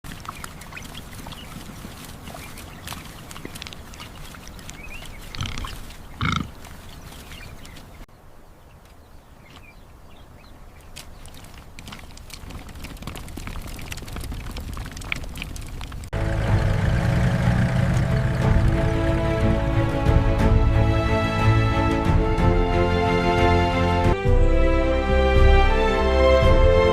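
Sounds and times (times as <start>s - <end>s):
animal grunting: 5.3s - 6.7s
small clicks and ticks: 11.0s - 16.1s.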